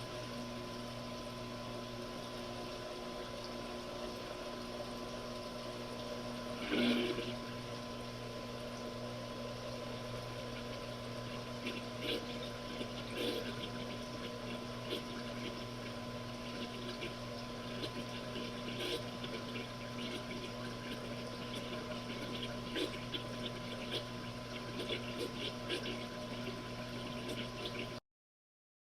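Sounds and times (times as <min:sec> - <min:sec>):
washing machine motor hum: 0:00.0 - 0:28.0
water sloshing and splashing: 0:08.7 - 0:28.0.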